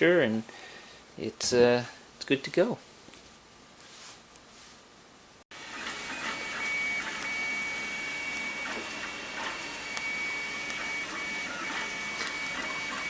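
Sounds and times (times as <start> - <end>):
mechanical hum: 0.0 - 13.0
stepper motors whining: 5.6 - 13.0.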